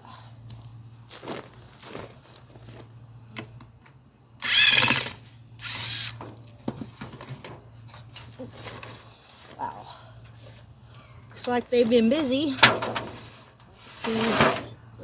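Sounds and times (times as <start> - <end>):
power drill motor whine: 4.4 - 6.2.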